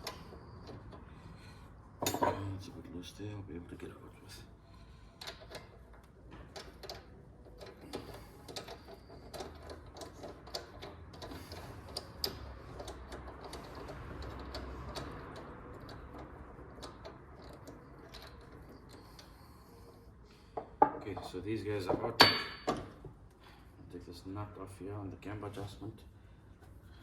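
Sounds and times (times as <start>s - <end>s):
hand ratchet clicking: 5.2s - 19.4s.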